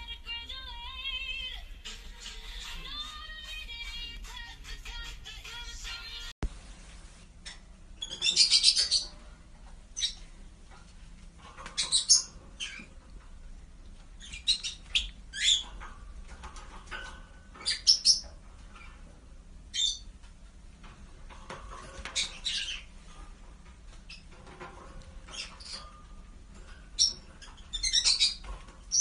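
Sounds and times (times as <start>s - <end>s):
small bird chirping: 7.4s - 9.2s, 10.0s - 10.3s, 11.7s - 13.0s, 14.2s - 15.8s, 17.5s - 18.3s, 19.7s - 20.1s, 22.1s - 22.9s, 26.9s - 29.0s.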